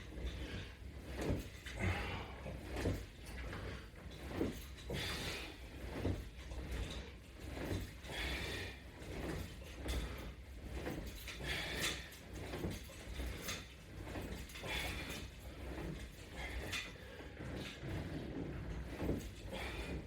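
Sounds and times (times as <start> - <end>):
body and exercise gear creaking: 0.0 - 20.0.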